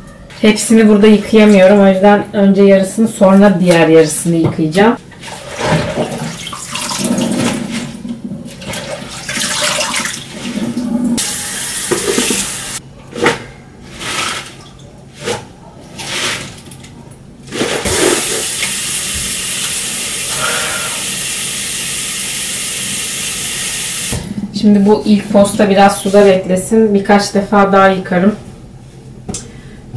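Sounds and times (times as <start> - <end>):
tap water running into sink: 11.2 - 12.8, 17.9 - 20.4, 21.0 - 24.2.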